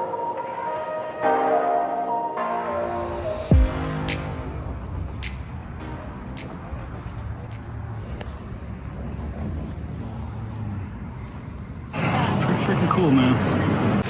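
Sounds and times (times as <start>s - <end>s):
road and wind noise: 2.9s - 14.0s.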